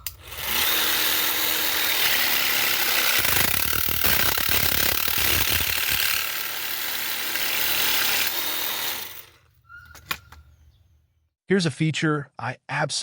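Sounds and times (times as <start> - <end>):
cordless jigsaw cutting: 0.0 - 9.5.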